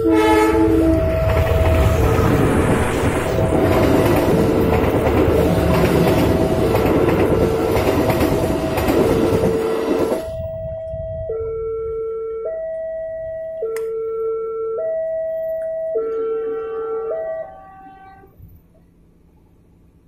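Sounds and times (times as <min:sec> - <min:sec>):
train clattering over crossing: 0:00.0 - 0:10.6
two-tone crossing alarm: 0:05.1 - 0:18.1.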